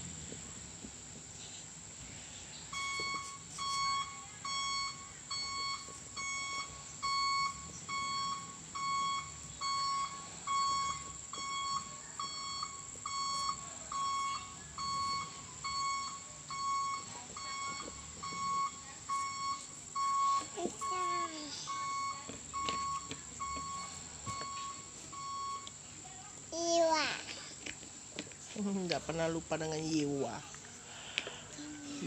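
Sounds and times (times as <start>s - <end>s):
electronic alarm beeping: 2.7s - 25.8s.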